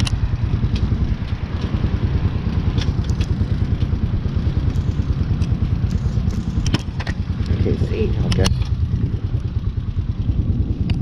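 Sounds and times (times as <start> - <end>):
motorcycle engine idling: 0.0 - 11.0
sharp clicks: 8.2 - 8.8.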